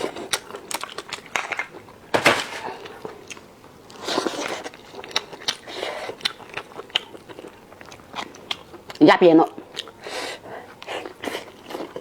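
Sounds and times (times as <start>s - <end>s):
chewing with wet mouth clicks: 3.2s - 10.1s.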